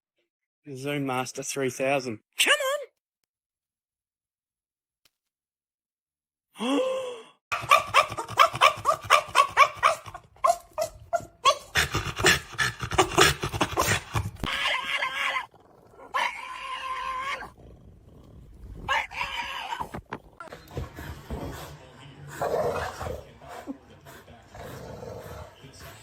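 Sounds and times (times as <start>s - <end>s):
dog barking and growling: 7.5s - 26.0s.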